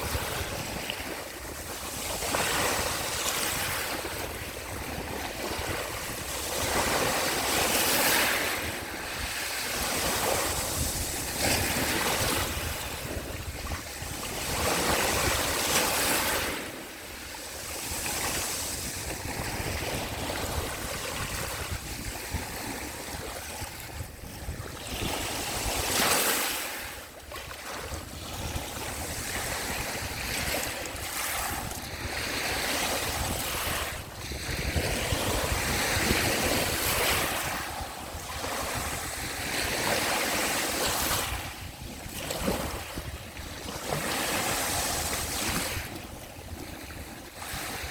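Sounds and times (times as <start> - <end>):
sea waves washing on shore: 0.0 - 47.9.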